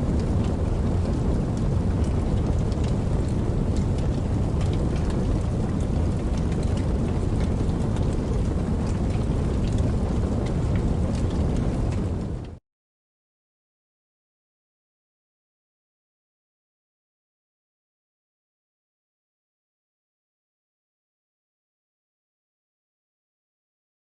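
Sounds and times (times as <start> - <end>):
sharp raindrop ticks: 0.0 - 12.6
steady rain falling: 0.0 - 12.6.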